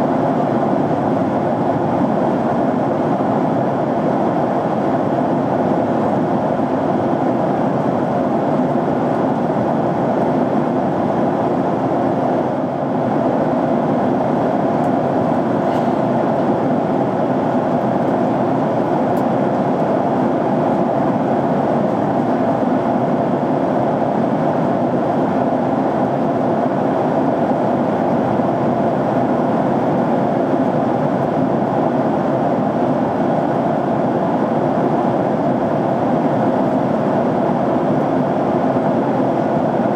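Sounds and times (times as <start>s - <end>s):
airliner cabin engine and airflow noise: 0.0s - 39.9s.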